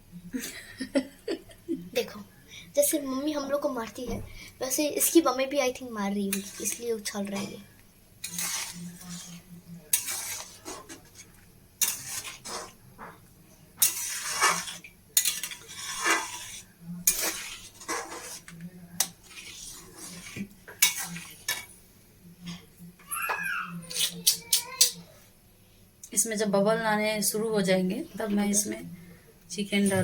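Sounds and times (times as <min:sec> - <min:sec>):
metal spoon scraping a pan: 0:06.1 - 0:21.8.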